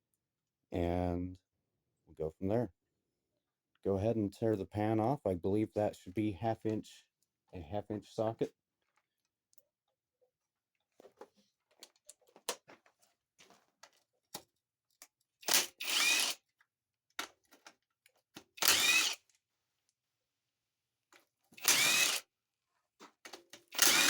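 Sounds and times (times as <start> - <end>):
power tool whining: 15.4 - 16.4, 18.6 - 19.2, 21.6 - 22.2, 23.7 - 24.0.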